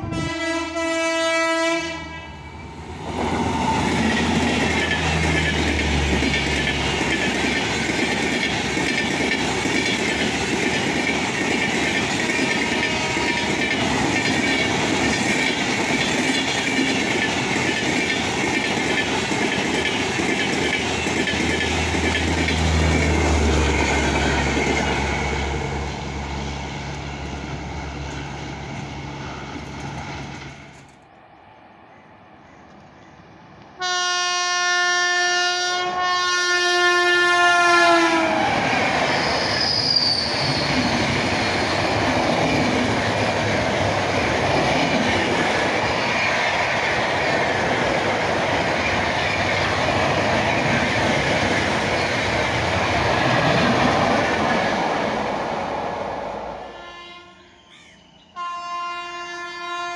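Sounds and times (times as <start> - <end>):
train passing at speed: 0.0 - 59.9
wheels clickety-clack on rails: 3.0 - 26.0, 26.8 - 31.0, 38.3 - 55.5.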